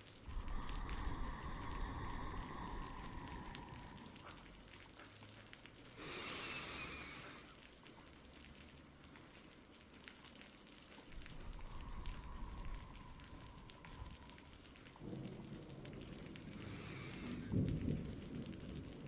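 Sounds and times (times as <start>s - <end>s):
soft rain: 0.0s - 19.0s
low rumble: 0.1s - 4.8s, 11.1s - 18.6s.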